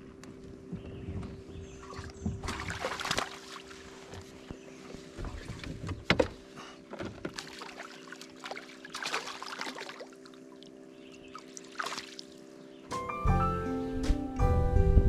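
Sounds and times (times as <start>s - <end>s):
knocks and clatter in a boat: 0.0s - 3.4s, 4.0s - 7.9s
water splashing and trickling: 1.7s - 4.4s, 5.2s - 12.5s.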